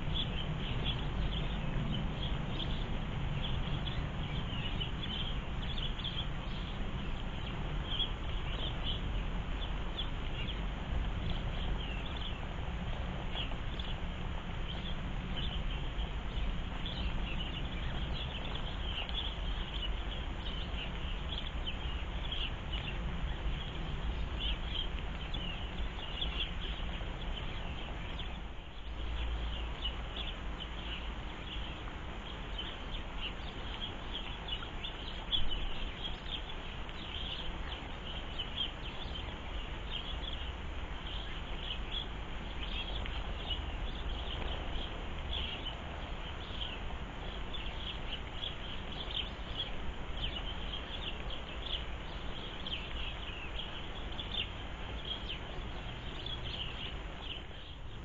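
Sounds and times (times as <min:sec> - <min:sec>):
low background rumble: 0:00.0 - 0:58.0
small birds chirping: 0:00.0 - 0:58.0.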